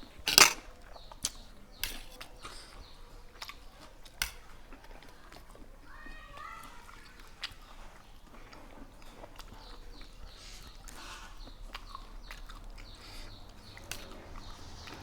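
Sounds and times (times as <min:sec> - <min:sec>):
small crunches: 0:00.0 - 0:02.8
person chewing food: 0:00.0 - 0:05.9, 0:06.8 - 0:15.0.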